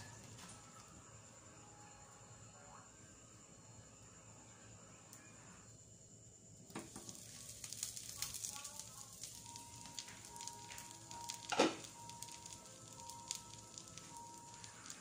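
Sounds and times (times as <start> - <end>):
omelet sizzling in a frying pan: 6.6 - 15.0.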